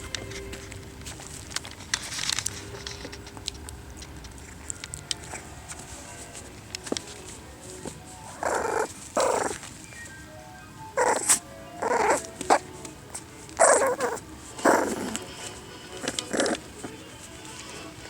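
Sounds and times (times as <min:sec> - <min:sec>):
puppies growling: 0:07.8 - 0:09.8, 0:11.0 - 0:18.0
puppies yipping: 0:07.8 - 0:09.8, 0:10.9 - 0:15.2.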